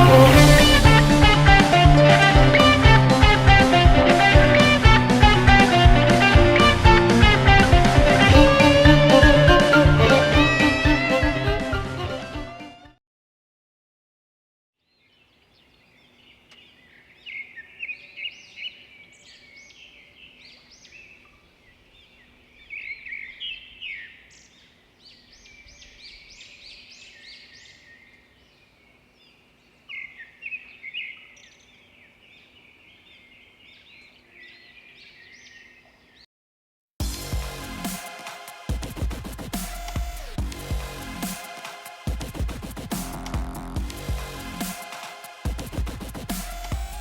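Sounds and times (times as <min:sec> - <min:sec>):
small birds chirping: 0:14.8 - 0:36.3.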